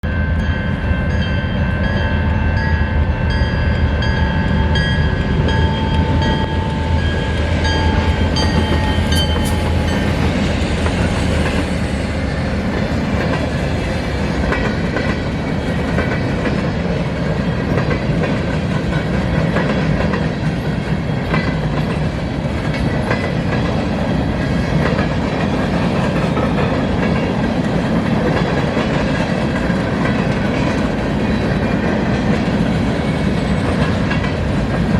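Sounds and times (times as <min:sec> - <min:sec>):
diesel locomotive engines droning: 0:00.0 - 0:34.9
rail cars rumbling and clattering: 0:00.0 - 0:34.9.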